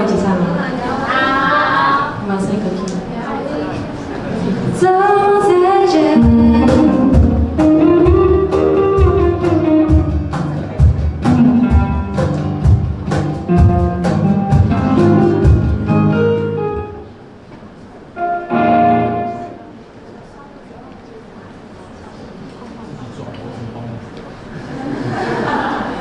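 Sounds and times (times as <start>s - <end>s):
woman singing: 4.8s - 7.4s
guitar: 4.8s - 17.2s, 18.1s - 20.0s
bass: 6.2s - 17.1s
drum kit beat: 6.2s - 17.1s.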